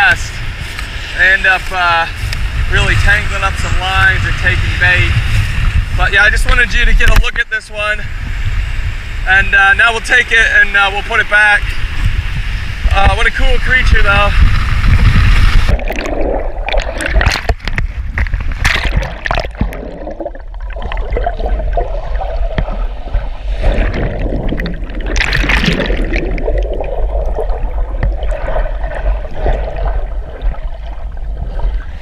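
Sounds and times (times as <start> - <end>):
steady low rumble: 0.0 - 32.0
surf water splashing: 9.8 - 32.0.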